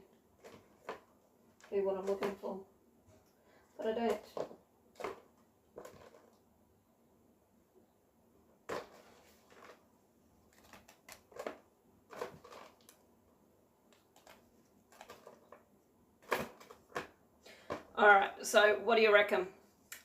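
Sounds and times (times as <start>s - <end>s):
handling rustles and taps: 0.0s - 2.5s, 4.0s - 6.5s, 8.7s - 9.9s, 10.5s - 13.1s, 13.9s - 18.0s.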